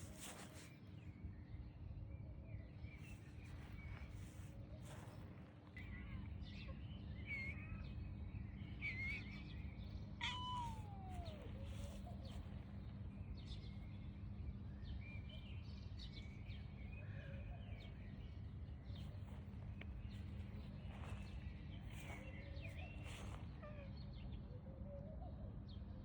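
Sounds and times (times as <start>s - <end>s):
cat meowing: 10.2s - 12.0s.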